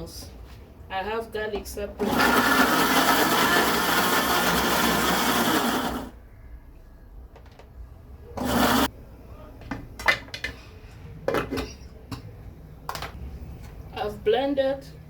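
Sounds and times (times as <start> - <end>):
electric blender: 2.0 - 6.1, 8.4 - 8.9.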